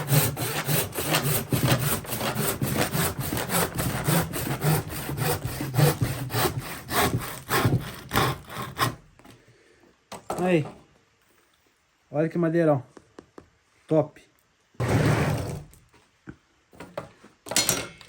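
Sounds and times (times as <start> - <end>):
handsaw sawing through wood: 0.0 - 9.0.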